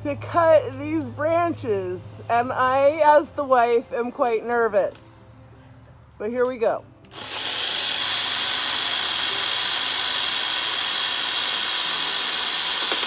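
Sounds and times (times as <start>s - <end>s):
electric chainsaw whining: 7.1s - 13.0s.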